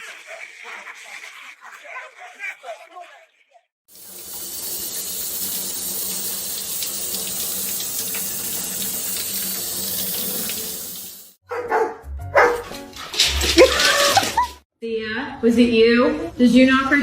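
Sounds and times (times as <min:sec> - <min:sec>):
water running from a tap: 0:03.9 - 0:11.4.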